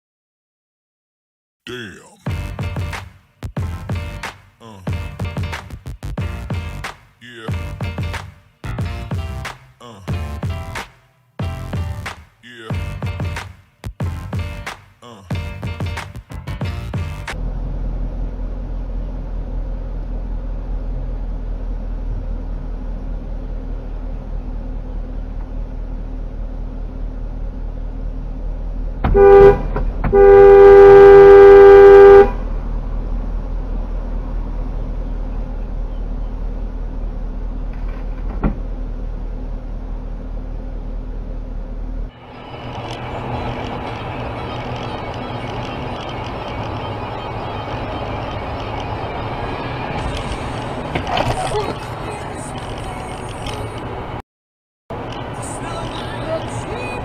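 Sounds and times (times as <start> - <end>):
engine and road noise inside car: 17.3 - 54.2, 54.9 - 57.0
two-tone car horn: 29.0 - 32.5.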